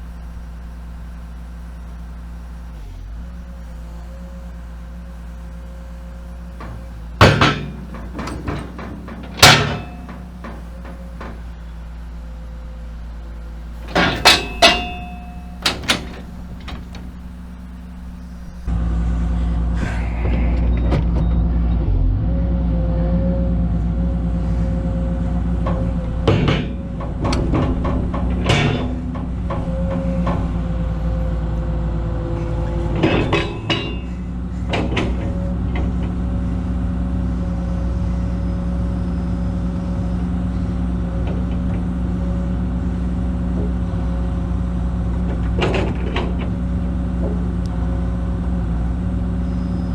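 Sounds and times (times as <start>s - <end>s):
excavator diesel engine: 0.0s - 49.9s
metal clanks with ringing: 5.1s - 18.7s, 33.0s - 34.2s.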